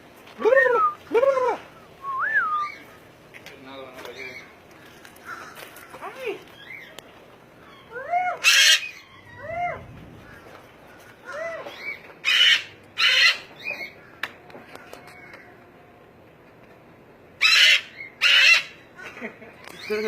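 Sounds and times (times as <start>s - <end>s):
parrots calling: 7.6s - 15.6s, 17.4s - 20.0s
parrot harsh screeches: 7.7s - 10.4s, 11.2s - 13.6s, 17.4s - 18.8s.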